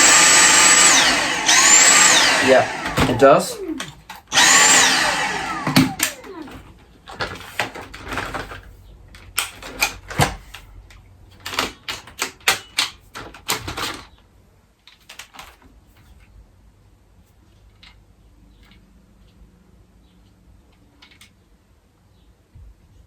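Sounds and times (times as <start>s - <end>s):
vacuum brush bar winding down: 0.0s - 6.6s.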